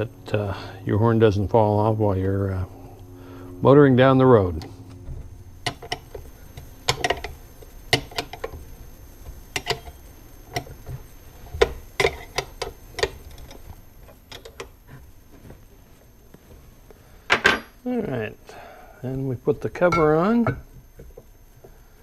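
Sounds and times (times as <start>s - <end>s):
metal bolts clicking and tapping: 6.9s - 8.5s.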